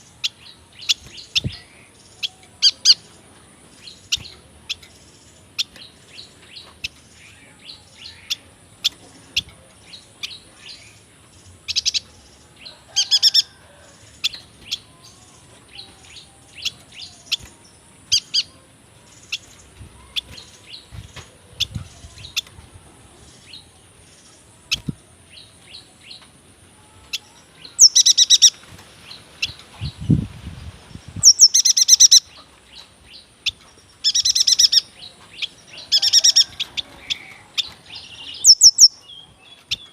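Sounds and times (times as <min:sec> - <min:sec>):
bird chirping: 0:00.0 - 0:30.2, 0:31.0 - 0:39.9
buzzy rattling bird trills: 0:33.4 - 0:39.0.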